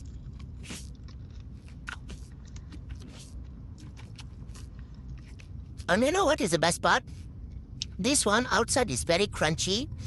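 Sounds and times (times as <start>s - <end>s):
crunchy chewing: 0.0s - 5.9s
low steady hum: 0.0s - 10.0s.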